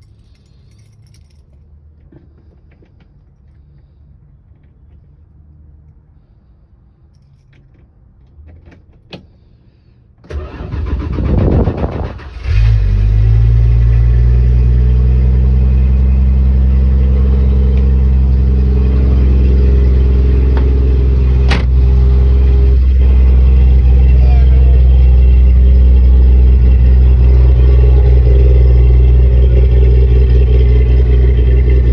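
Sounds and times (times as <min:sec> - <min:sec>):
car engine idling: 0:11.8 - 0:31.9.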